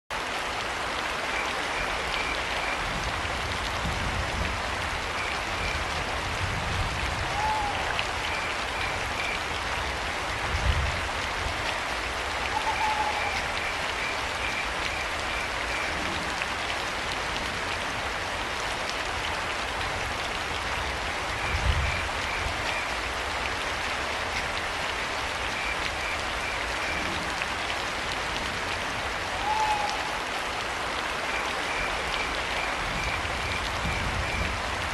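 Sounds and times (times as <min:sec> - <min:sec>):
rain falling: 0:00.1 - 0:34.9
owl calls: 0:07.3 - 0:08.0, 0:12.4 - 0:13.6, 0:29.3 - 0:30.2.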